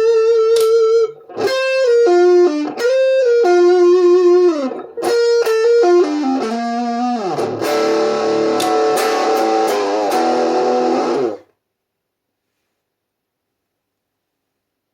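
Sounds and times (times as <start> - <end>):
electric guitar notes and chord: 0.0 - 11.4.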